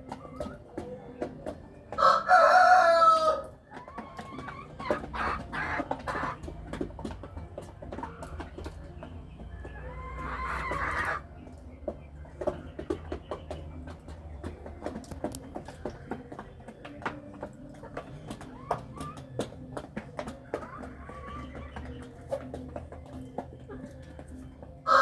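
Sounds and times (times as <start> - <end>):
chickens clucking: 0.0 - 25.0
rooster crowing: 2.0 - 3.5
pecking taps: 11.4 - 24.4.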